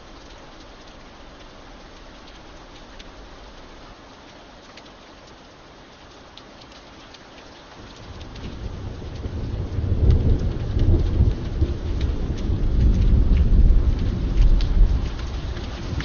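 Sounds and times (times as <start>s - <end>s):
steady rain: 0.0s - 16.0s
thunder rumbling: 7.8s - 16.0s.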